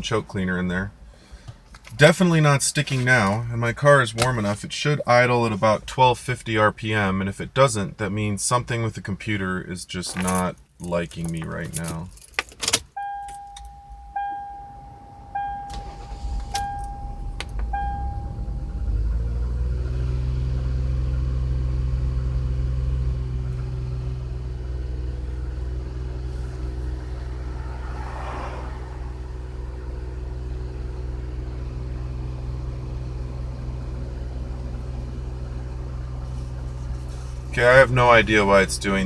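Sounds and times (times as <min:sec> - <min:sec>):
car engine starting and idling: 0:00.0 - 0:09.3, 0:11.1 - 0:39.0
car warning chime: 0:12.9 - 0:19.4.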